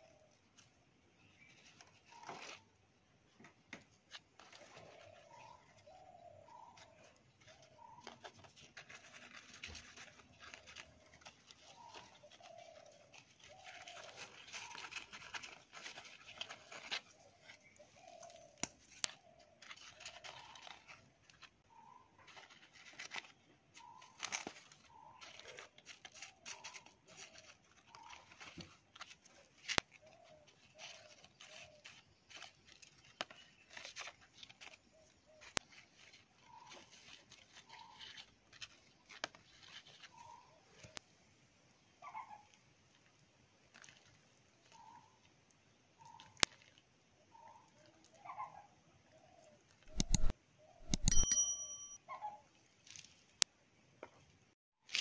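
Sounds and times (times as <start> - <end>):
hands pressing potting soil: 49.8 - 52.0.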